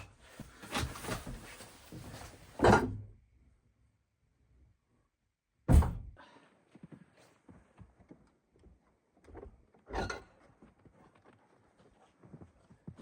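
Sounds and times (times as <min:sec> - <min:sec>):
heavy thud: 0:05.7 - 0:06.1.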